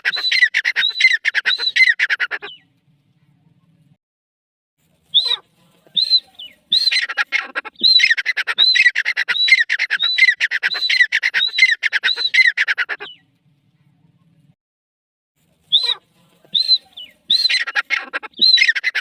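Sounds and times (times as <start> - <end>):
bird calling with rattling stutter: 0.0 - 2.8, 6.0 - 13.4, 16.6 - 19.0.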